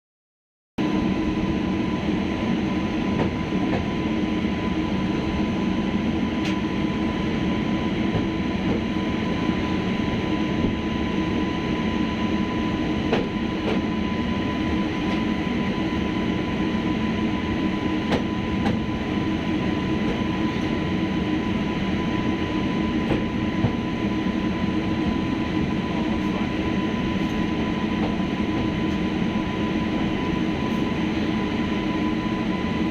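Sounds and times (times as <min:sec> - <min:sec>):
train rumbling on rails: 0:00.8 - 0:32.9.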